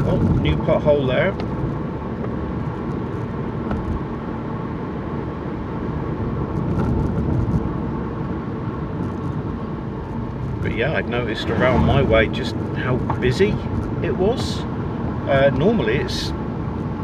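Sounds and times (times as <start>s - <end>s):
car engine and tyres rumbling: 1.3s - 17.0s.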